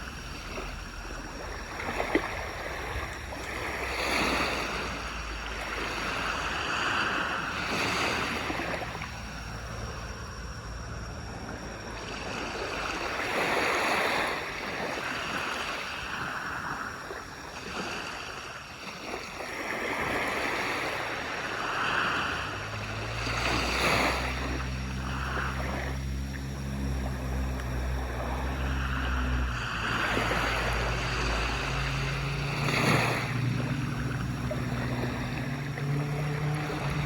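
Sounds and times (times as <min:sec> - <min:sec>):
low steady hum: 0:00.0 - 0:13.3, 0:20.9 - 0:37.0
sea waves breaking on shore: 0:00.0 - 0:37.0.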